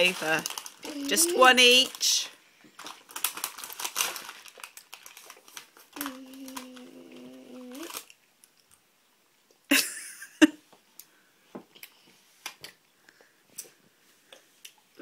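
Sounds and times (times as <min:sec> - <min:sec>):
children chewing: 0:00.1 - 0:01.9, 0:02.9 - 0:08.8, 0:11.0 - 0:15.0
child humming mmm: 0:00.8 - 0:01.5, 0:06.0 - 0:08.0.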